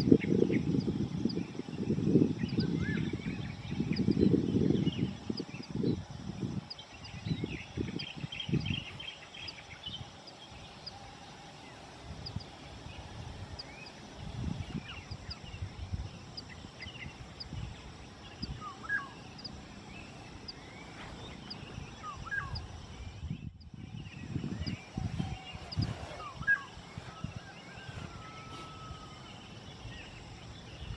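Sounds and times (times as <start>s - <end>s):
birds whistling and trilling: 0.0s - 30.9s
wind buffeting microphone: 0.0s - 30.9s.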